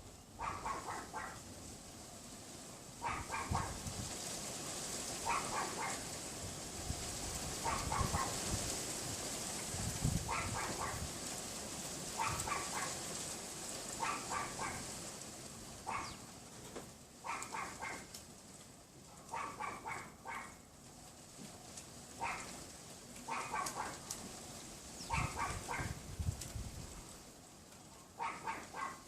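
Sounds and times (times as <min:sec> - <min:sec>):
small dog yapping: 0:00.4 - 0:01.4, 0:03.0 - 0:03.8, 0:05.2 - 0:06.1, 0:07.6 - 0:08.4, 0:10.3 - 0:11.1, 0:12.2 - 0:13.0, 0:14.0 - 0:14.9, 0:15.8 - 0:16.2, 0:17.2 - 0:18.1, 0:19.2 - 0:20.6, 0:22.2 - 0:22.6, 0:23.3 - 0:24.0, 0:25.0 - 0:26.0, 0:28.2 - 0:29.0
wind gusting on microphone: 0:03.0 - 0:13.1, 0:25.0 - 0:27.3.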